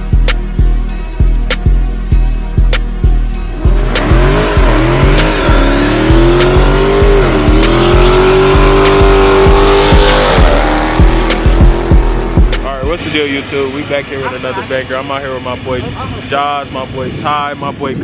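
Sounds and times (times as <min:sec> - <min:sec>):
music with drum beat: 0:00.0 - 0:13.1
engine at high revs: 0:03.1 - 0:16.6.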